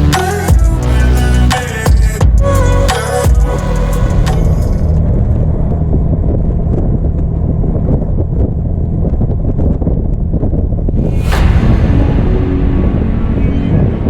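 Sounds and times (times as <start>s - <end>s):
music: 0.0s - 4.8s, 11.1s - 14.0s
car engine running: 0.0s - 11.0s.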